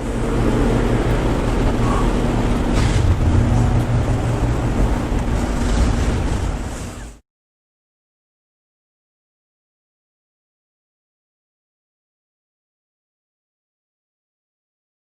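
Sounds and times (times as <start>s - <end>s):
car engine droning: 0.0s - 7.2s.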